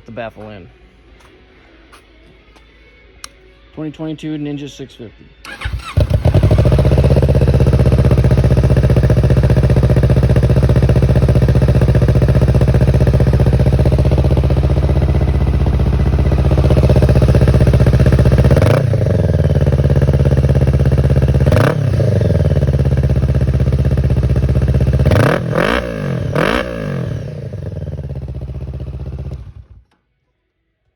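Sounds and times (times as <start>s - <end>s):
motorcycle engine idling and revving: 5.5s - 29.8s.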